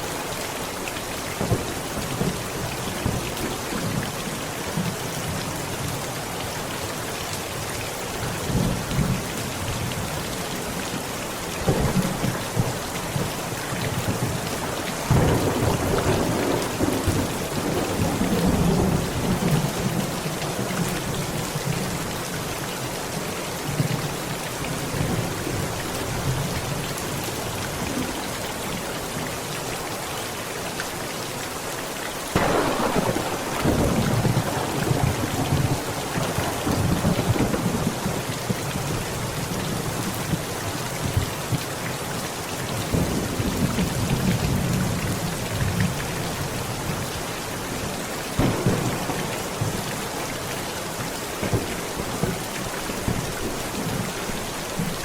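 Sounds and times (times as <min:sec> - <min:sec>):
heavy rain on a tent: 0:00.0 - 0:55.0
thunder rumbling: 0:32.3 - 0:38.6, 0:48.4 - 0:50.2.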